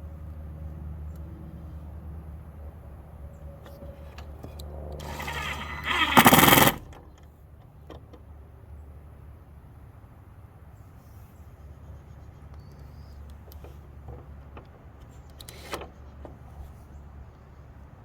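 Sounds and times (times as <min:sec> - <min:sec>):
power driver whirring: 0:04.3 - 0:07.0
impact driver hammering: 0:05.0 - 0:06.9.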